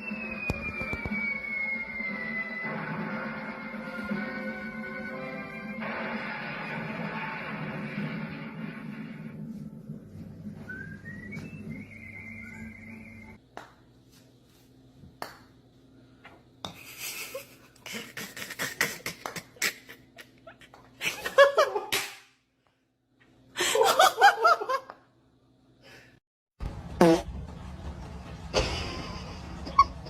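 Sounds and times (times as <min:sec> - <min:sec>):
person laughing: 0:16.8 - 0:22.0, 0:28.6 - 0:30.0.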